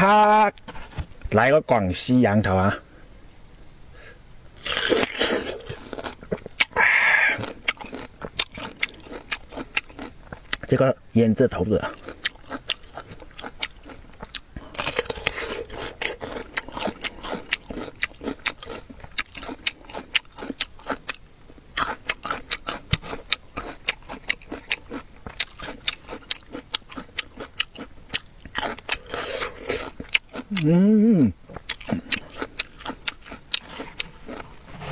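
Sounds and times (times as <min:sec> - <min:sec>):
crisp crunchy chewing: 0:04.6 - 0:10.9, 0:11.8 - 0:30.7, 0:31.5 - 0:34.9.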